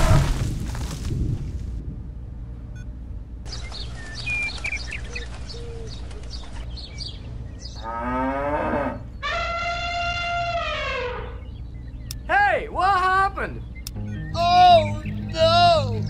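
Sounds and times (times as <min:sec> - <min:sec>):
low steady hum: 0:00.0 - 0:16.0
birds chirping: 0:02.7 - 0:16.0
cow mooing: 0:07.8 - 0:11.4.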